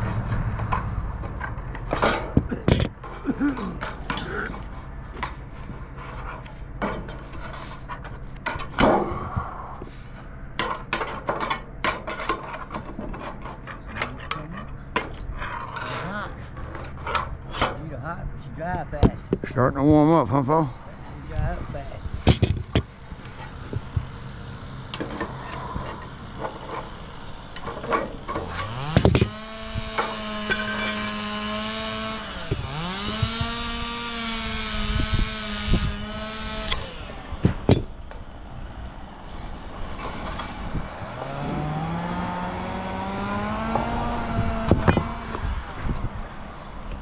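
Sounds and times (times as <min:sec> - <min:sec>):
engine revving: 0:00.0 - 0:02.3, 0:19.7 - 0:46.4
sharp knocks: 0:27.7 - 0:31.0.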